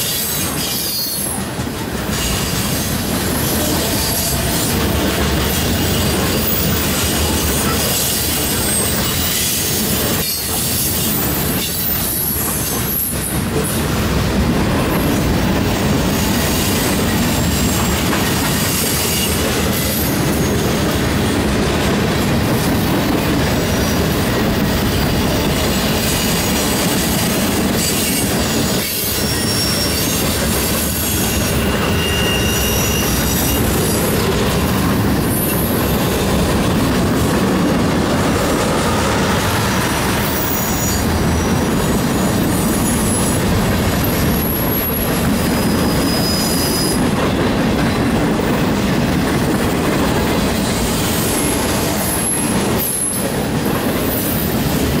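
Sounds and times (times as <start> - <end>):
steel wheels rumbling on rail: 0.0 - 55.0
high-pitched wheel squeals: 27.8 - 34.2, 40.2 - 41.2, 44.1 - 47.1.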